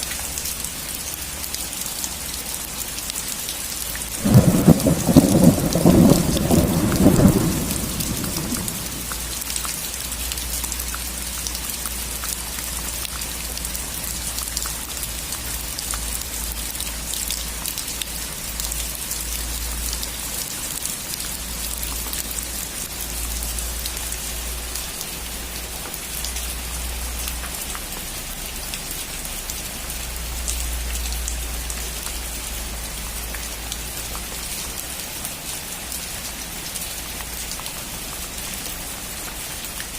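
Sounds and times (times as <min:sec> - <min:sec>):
rain falling on a roof: 0:00.0 - 0:39.9
thunderclap: 0:04.2 - 0:09.2.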